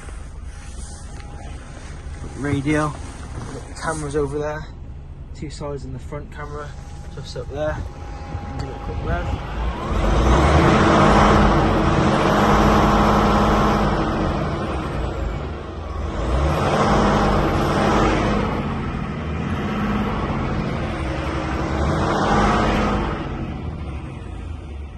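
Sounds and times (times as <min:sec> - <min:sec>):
truck diesel engine revving: 0:06.0 - 0:24.9.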